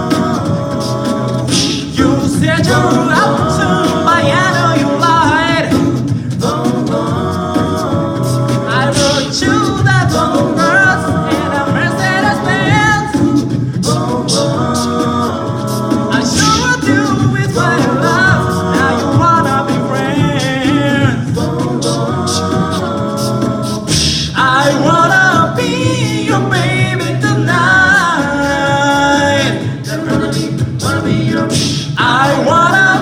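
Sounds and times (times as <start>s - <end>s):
group singing in harmony: 0.0s - 33.0s.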